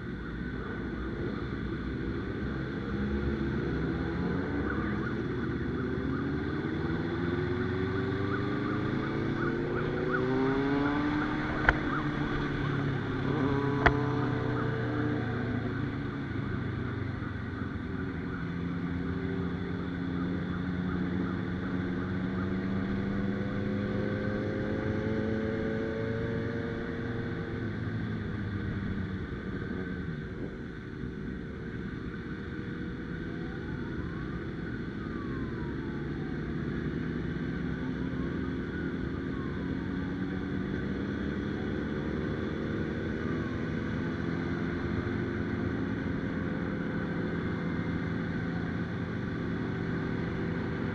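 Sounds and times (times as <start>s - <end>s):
motorcycle engine running: 0.0s - 34.3s.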